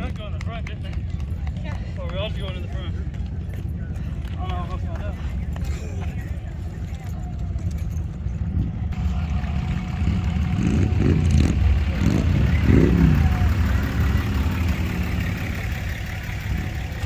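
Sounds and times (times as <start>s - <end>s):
vehicle engine revving: 8.9s - 17.0s.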